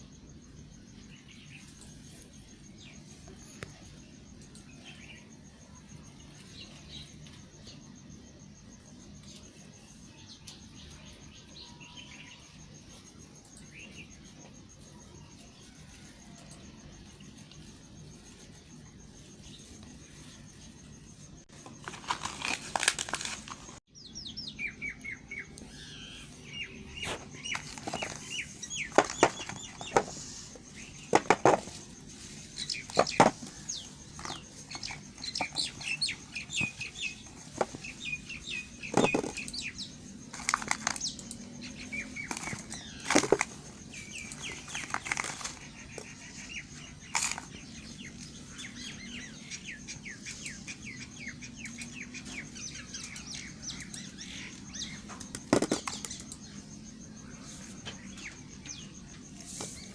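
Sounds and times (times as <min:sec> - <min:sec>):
small chirps: 0:24.4 - 0:59.9.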